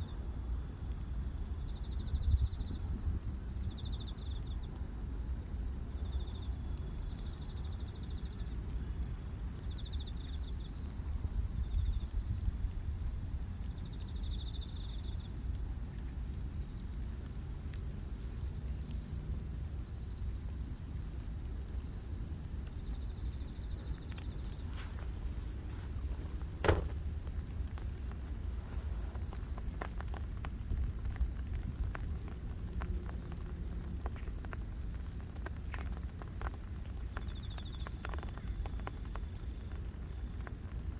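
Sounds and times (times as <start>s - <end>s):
sharp click: 26.0s - 27.0s.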